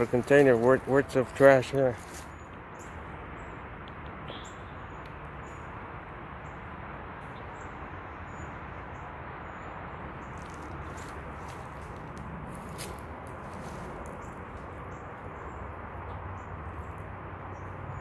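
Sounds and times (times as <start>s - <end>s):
small birds chirping: 0.0s - 5.7s.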